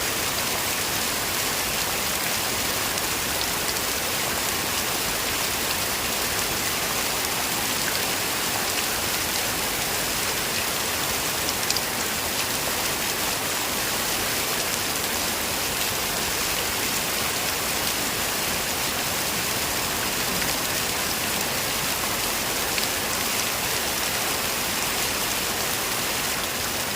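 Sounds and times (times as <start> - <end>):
heavy rain falling: 0.0 - 26.9.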